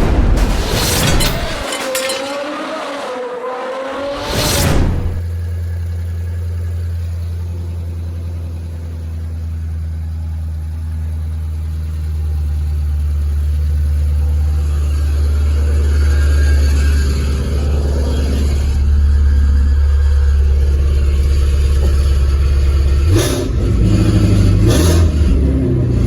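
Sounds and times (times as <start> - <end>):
whoosh: 3.9 - 5.2
car engine idling: 4.9 - 26.0.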